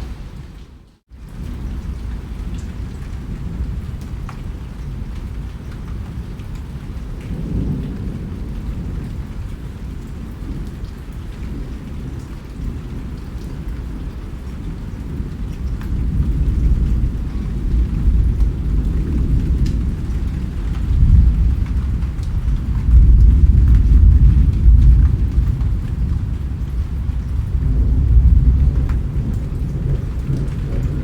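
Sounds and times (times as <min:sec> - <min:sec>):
steady rain: 0:00.0 - 0:31.0
deep thunder rumble: 0:11.4 - 0:31.0.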